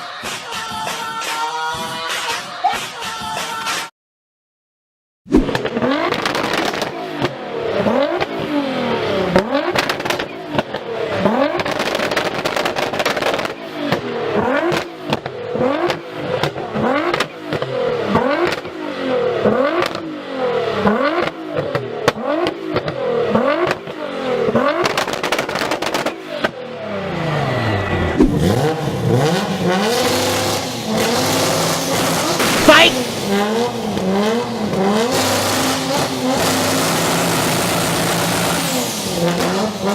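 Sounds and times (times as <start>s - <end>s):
exhaust pops and crackles: 5.5s - 7.4s, 9.4s - 18.8s, 23.6s - 26.6s
car exhaust revving: 5.6s - 39.9s.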